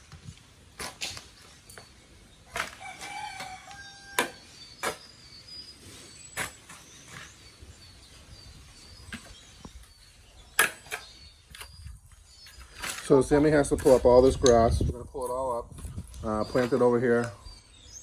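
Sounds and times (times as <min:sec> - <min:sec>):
faint bird chirps: 0:01.4 - 0:13.1
rooster crowing: 0:02.8 - 0:04.5.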